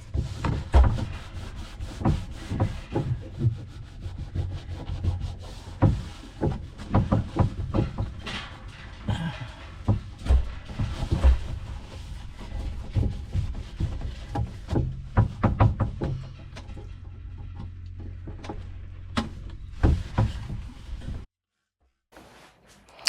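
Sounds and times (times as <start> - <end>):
refrigerator low hum: 0.0 - 21.3
cloth rubbing and squeaking on plastic: 22.2 - 23.0.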